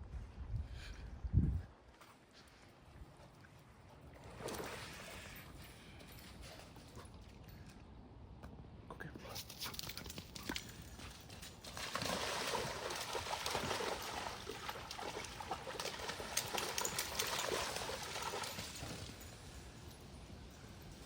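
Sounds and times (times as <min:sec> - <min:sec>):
water splashing and trickling: 0:02.5 - 0:06.2, 0:09.4 - 0:21.0.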